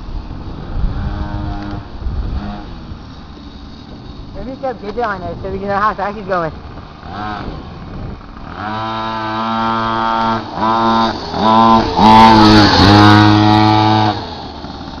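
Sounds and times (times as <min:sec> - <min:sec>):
minibike engine revving: 0:00.0 - 0:15.0.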